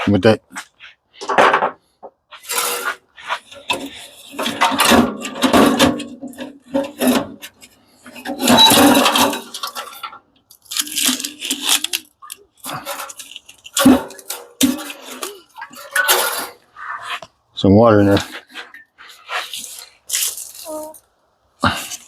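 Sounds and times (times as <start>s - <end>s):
metal parts clattering: 2.5s - 2.9s, 3.6s - 16.6s.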